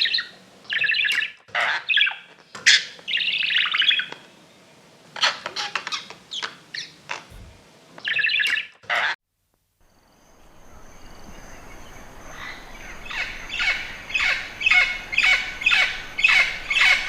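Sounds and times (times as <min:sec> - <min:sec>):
parrot chirping: 0:11.0 - 0:17.0.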